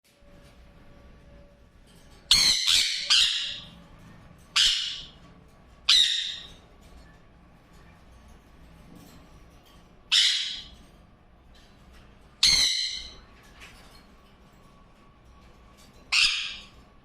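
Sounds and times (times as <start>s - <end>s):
parrot squawking: 2.3s - 3.8s, 4.5s - 6.6s, 10.1s - 10.8s, 12.4s - 13.2s, 16.1s - 16.8s.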